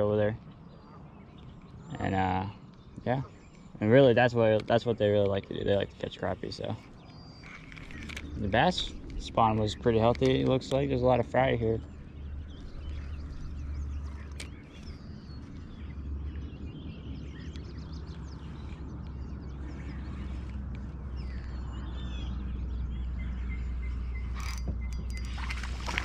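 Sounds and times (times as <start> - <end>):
birds chirping: 0.0 - 26.0
steady low rumble: 3.7 - 26.0
light clicks: 7.0 - 11.0.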